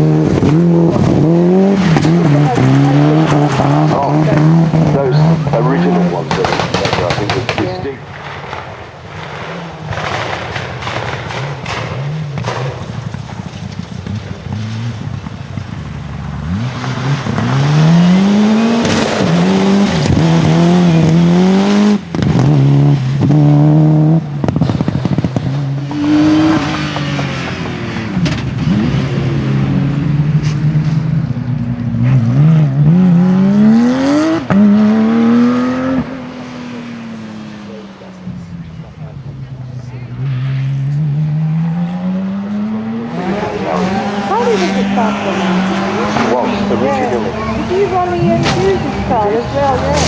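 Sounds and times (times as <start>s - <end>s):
rally car engine revving: 0.0s - 50.0s
engine pops: 0.2s - 33.0s.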